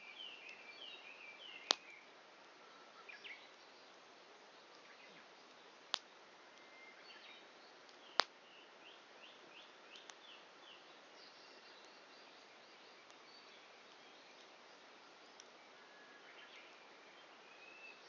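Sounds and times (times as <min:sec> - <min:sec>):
bird chirping: 0:00.0 - 0:05.8, 0:06.5 - 0:18.0
quiet outdoor hiss: 0:00.0 - 0:18.0
wood fire popping: 0:05.6 - 0:06.7, 0:07.8 - 0:08.4, 0:10.0 - 0:10.2.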